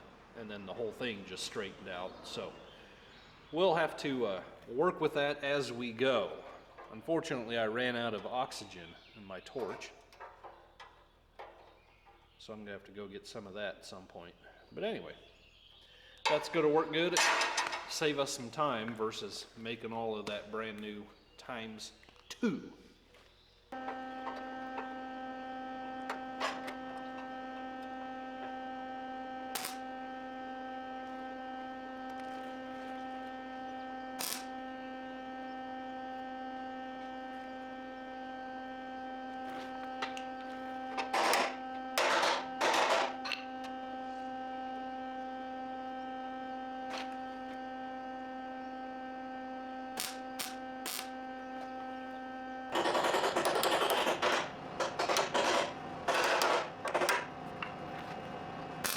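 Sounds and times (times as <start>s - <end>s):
electrical hum: 0.0s - 58.9s
harsh noise bursts: 29.3s - 35.9s, 49.9s - 51.2s
sharp clicks: 29.6s - 29.9s, 34.2s - 34.6s, 50.0s - 51.7s.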